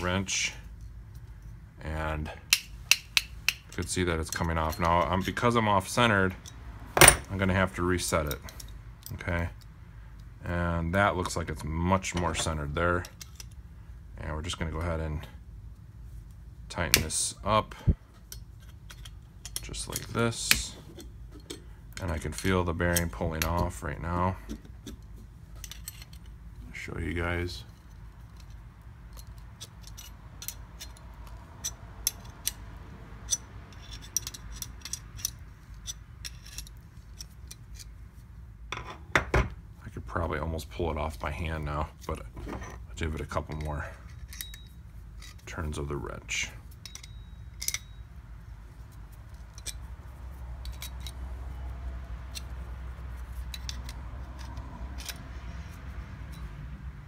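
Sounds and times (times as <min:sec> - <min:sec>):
low steady hum: 0:00.0 - 0:57.0
wrench clicking: 0:33.2 - 0:37.9.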